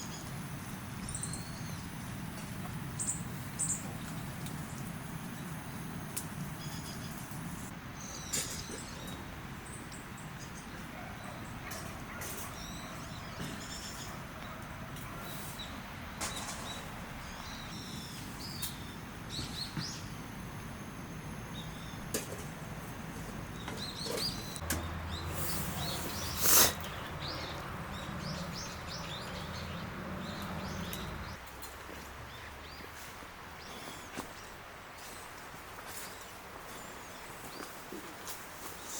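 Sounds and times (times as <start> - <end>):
small birds chirping: 0.0 - 22.2, 23.2 - 31.5.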